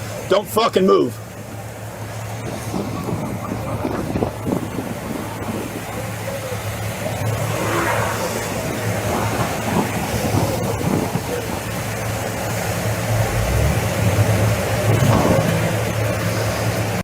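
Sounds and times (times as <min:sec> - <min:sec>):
noisy background: 0:00.0 - 0:17.0
vehicle engine idling: 0:00.0 - 0:17.0
faint voices: 0:01.0 - 0:13.1.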